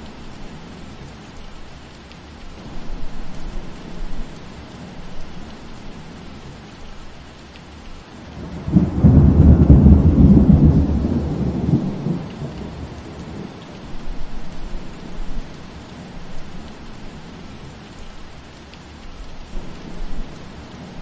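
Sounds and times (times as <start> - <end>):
steady rain falling: 0.0 - 21.0
thunder rumbling: 8.3 - 15.6.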